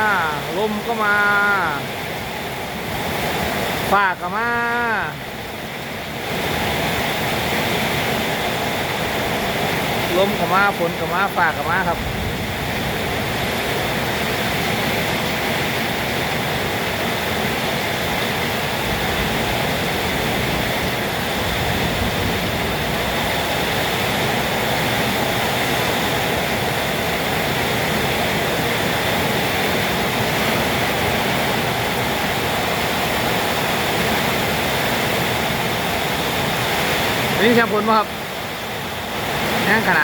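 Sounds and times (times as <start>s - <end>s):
heavy rain pouring: 0.0s - 40.0s.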